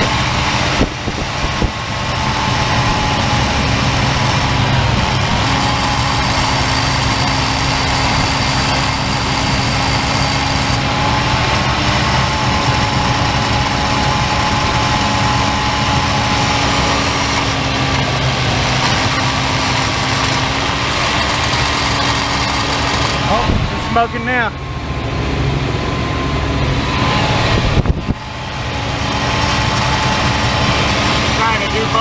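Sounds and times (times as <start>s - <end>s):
car engine at fast idle: 0.0s - 32.0s.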